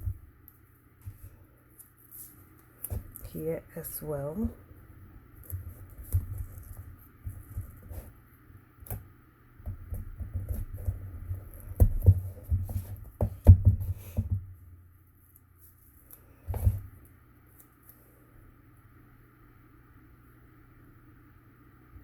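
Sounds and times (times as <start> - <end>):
cardstock and cardboard handling: 0.0 - 3.9, 5.4 - 8.3, 9.7 - 14.6.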